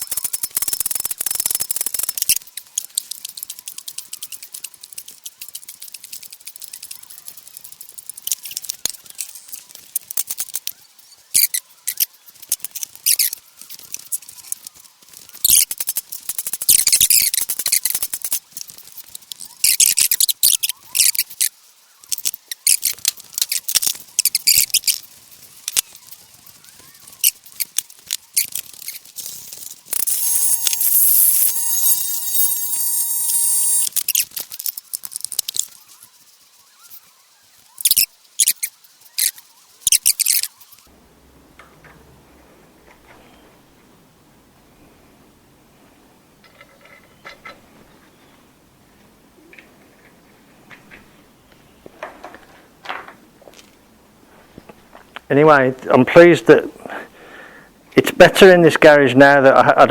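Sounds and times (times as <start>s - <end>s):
hand tools and metal parts clinking: 0.0s - 10.8s, 11.4s - 35.8s.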